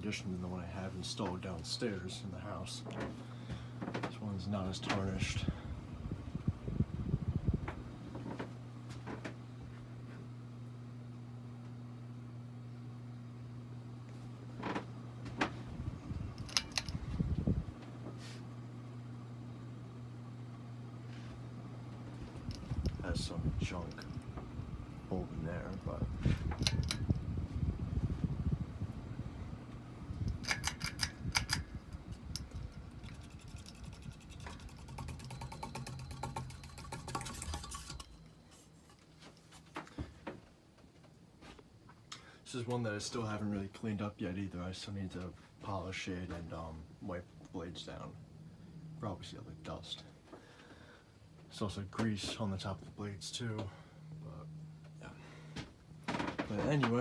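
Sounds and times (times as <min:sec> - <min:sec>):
ceiling fan motor humming: 0:00.0 - 0:57.0
handling rustles and knocks: 0:30.2 - 0:42.0
rapid clicking: 0:32.4 - 0:38.1.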